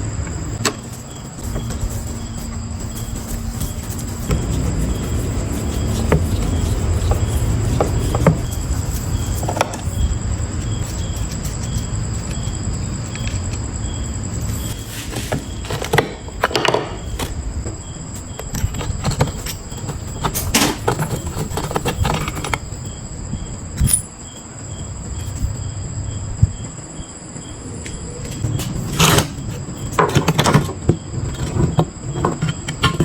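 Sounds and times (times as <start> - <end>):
high-pitched insect chirring: 0.5 - 15.7, 17.0 - 30.0
metal parts and tools handled: 23.8 - 24.2.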